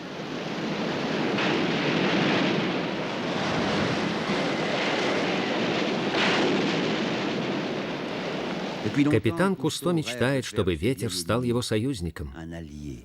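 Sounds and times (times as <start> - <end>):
stormy wind: 0.0 - 9.5.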